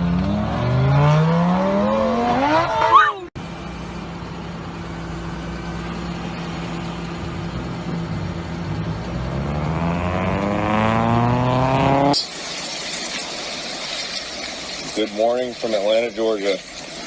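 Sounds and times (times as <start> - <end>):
car engine revving: 0.0 - 12.2.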